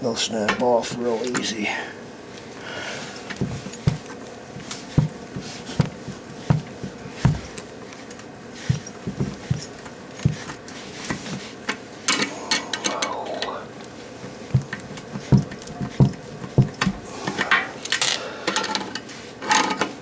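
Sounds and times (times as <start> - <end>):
short low knocks: 3.4 - 4.1, 4.9 - 7.6, 14.5 - 17.1.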